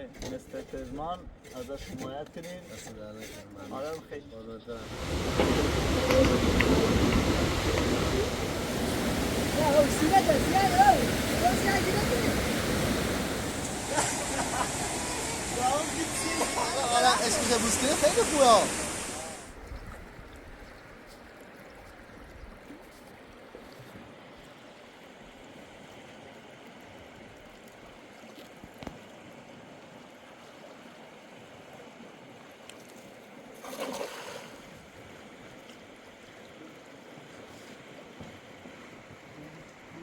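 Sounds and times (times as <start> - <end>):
river water flowing: 4.7 - 40.0.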